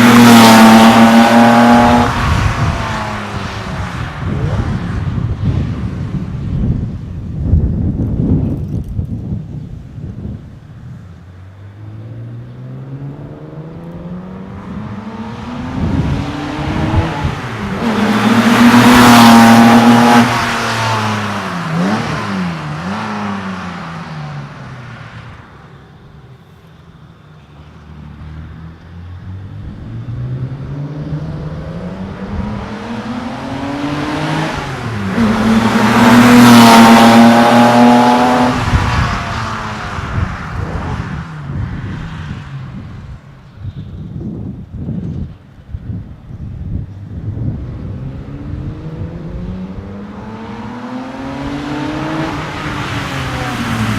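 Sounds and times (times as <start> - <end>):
car engine accelerating past: 0.0 - 5.6, 11.8 - 25.3, 27.8 - 42.7, 47.4 - 53.9.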